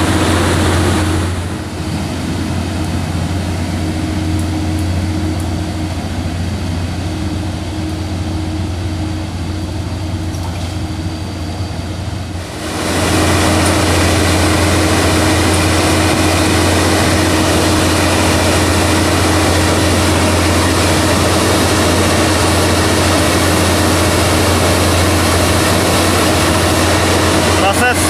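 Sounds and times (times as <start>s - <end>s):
heavy diesel engine running: 0.0s - 28.0s.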